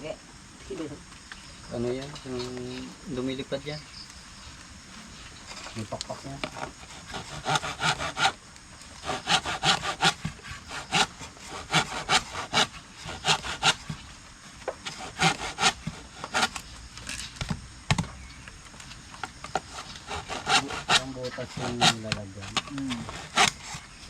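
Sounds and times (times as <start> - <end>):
rhythmic rasping strokes: 6.8 - 8.4, 9.0 - 14.0, 19.6 - 23.9.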